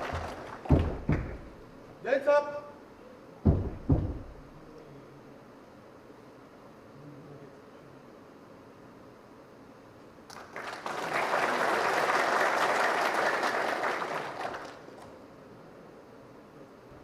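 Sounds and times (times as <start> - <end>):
audience applauding: 0.0 - 1.3, 10.3 - 15.1.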